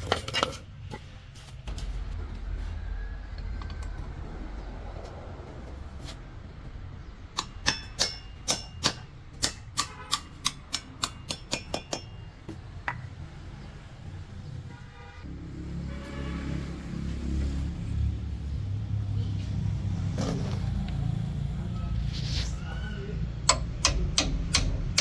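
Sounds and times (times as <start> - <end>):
low rumble: 1.7 - 7.3
hammer striking steel: 7.4 - 12.4, 23.5 - 25.0.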